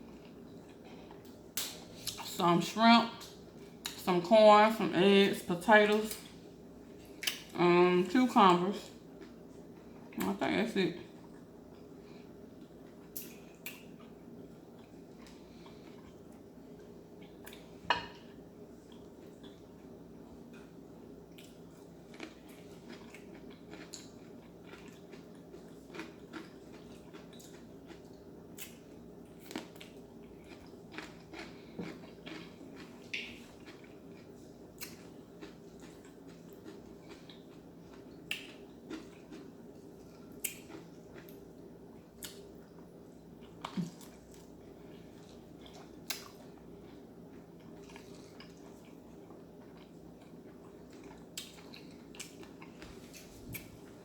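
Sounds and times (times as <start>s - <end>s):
steady low hum: 0.0s - 54.0s
chewing and biting: 21.3s - 41.5s, 45.2s - 54.0s.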